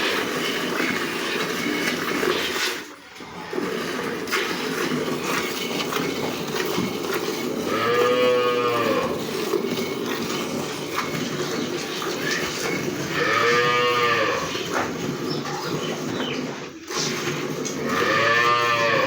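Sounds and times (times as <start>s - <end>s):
cow mooing: 7.6s - 9.5s, 12.9s - 14.8s, 17.8s - 19.0s.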